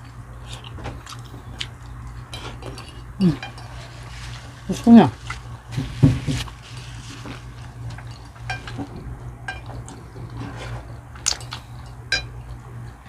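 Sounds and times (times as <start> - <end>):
low steady hum: 0.0 - 13.0
cutlery clinking against plates: 8.1 - 8.9, 9.5 - 9.8, 11.4 - 12.4.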